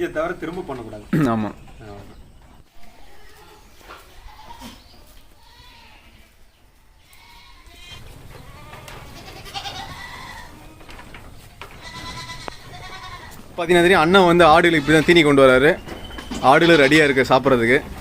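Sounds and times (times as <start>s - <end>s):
goats bleating: 4.0s - 10.9s, 11.6s - 15.6s, 16.4s - 17.7s.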